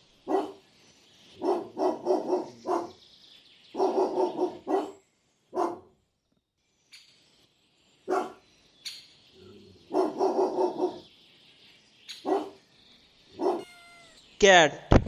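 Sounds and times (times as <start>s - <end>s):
dog barking: 0.2s - 0.6s, 1.4s - 3.0s, 3.8s - 5.9s, 8.1s - 8.4s, 9.9s - 11.0s, 12.2s - 12.6s, 13.4s - 13.8s.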